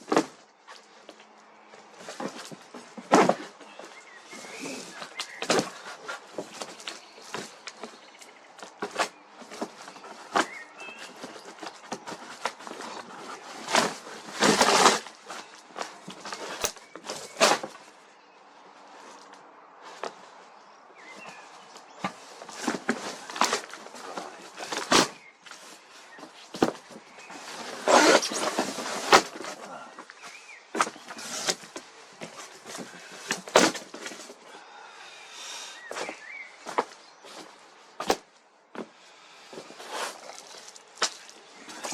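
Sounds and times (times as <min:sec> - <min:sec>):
packaging knocks and scrapes: 0:01.9 - 0:08.0, 0:08.6 - 0:17.9, 0:21.0 - 0:34.4, 0:39.6 - 0:41.9.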